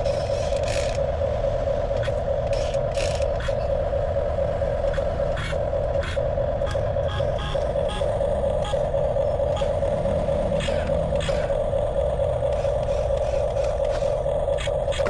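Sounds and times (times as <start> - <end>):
small electric motor whine: 0.0 - 15.0.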